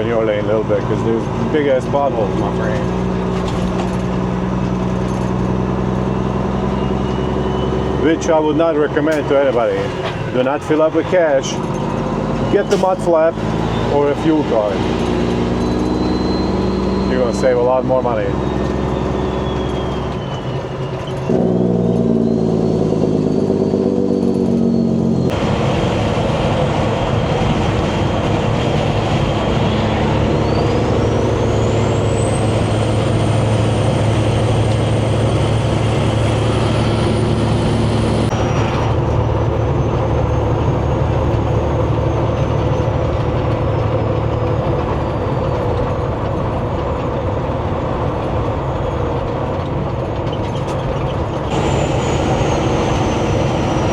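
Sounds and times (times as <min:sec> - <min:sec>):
road noise: 0:00.0 - 0:53.9
truck diesel engine accelerating: 0:00.0 - 0:53.9
thin high whistle: 0:15.6 - 0:17.4, 0:18.4 - 0:21.2.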